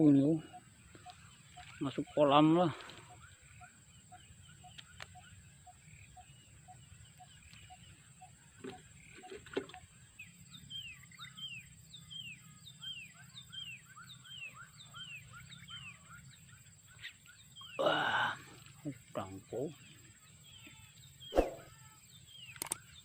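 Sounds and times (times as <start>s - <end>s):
bird whistling calls: 21.2s - 21.7s.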